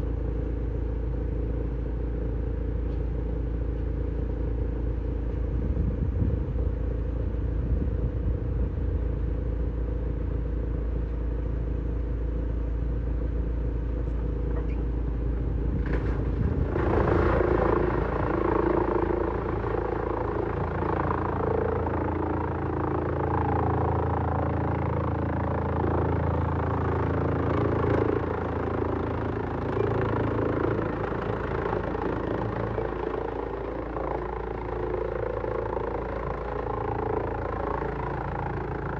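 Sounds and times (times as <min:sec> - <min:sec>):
wood shredder running: 0:15.6 - 0:38.9
machine grinding wood: 0:15.8 - 0:38.9.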